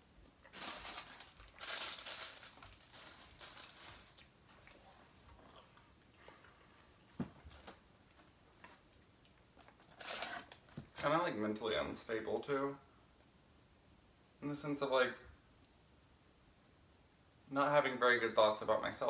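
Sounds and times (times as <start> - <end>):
crunching and chewing food: 0.2 - 7.8, 8.6 - 10.8.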